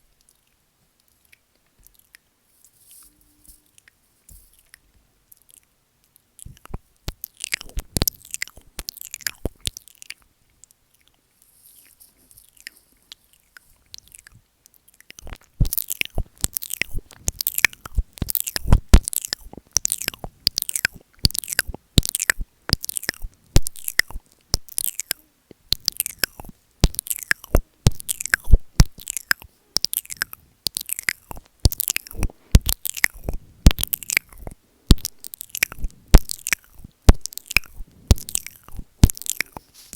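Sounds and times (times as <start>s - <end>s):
wet mouth clicks on microphone: 6.4s - 10.2s, 15.0s - 39.7s.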